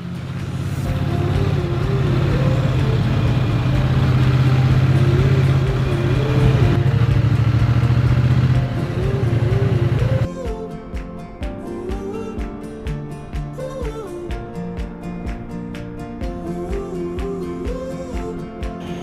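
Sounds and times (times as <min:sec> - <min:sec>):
motorcycle engine running: 0:00.0 - 0:10.3
melody playing: 0:00.4 - 0:14.3.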